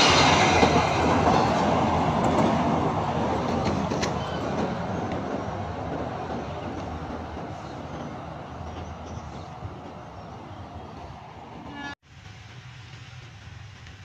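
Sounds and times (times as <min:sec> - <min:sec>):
train rumbling across bridge: 0:00.0 - 0:14.0.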